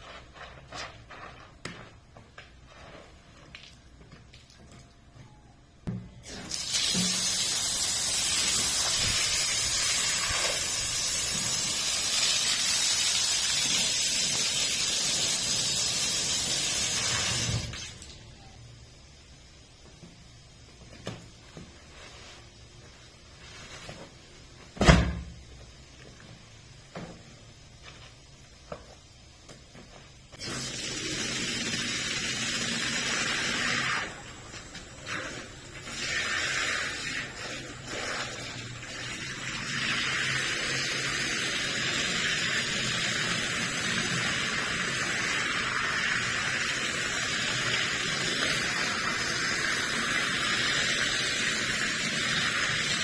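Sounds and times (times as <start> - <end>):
water spraying: 6.2 - 18.2, 30.4 - 53.0
pressurized water spray hissing: 6.3 - 18.0.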